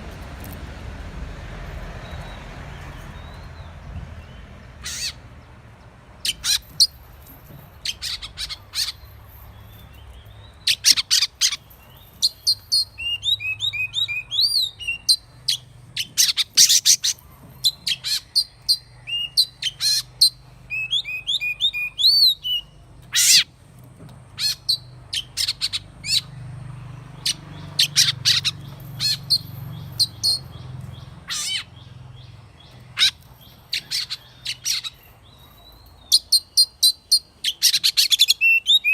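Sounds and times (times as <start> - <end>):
songbird singing whistled notes: 11.9 - 23.4, 27.2 - 38.9.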